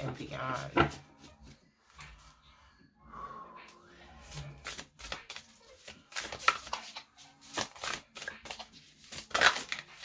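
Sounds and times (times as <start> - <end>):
cards being shuffled: 4.3 - 10.0.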